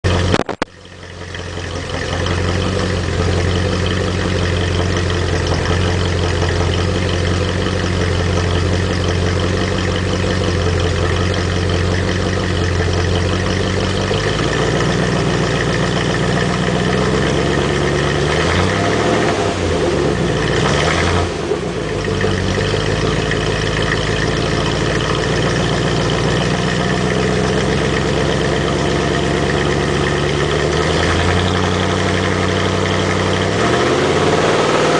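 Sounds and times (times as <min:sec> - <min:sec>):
car engine idling and revving: 0:00.0 - 0:34.9.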